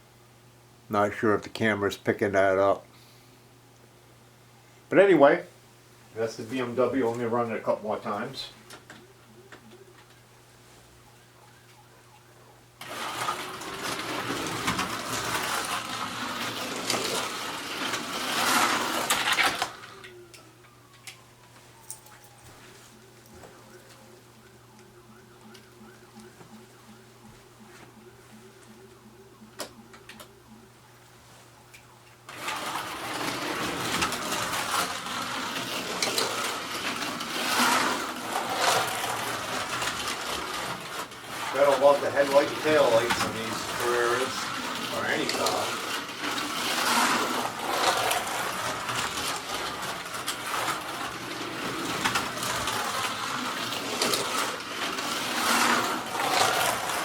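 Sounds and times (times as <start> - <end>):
slot car rattling in track: 12.8 - 19.8, 32.3 - 57.0
slot car motor whirring: 12.8 - 21.2, 22.9 - 27.2, 27.9 - 31.0, 31.6 - 57.0.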